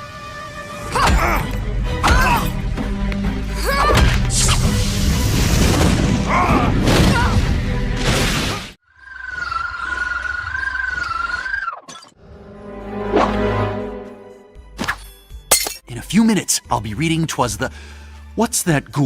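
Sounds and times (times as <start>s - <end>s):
dramatic music: 0.0s - 8.7s, 12.2s - 18.4s
glass shattering: 15.0s - 15.8s.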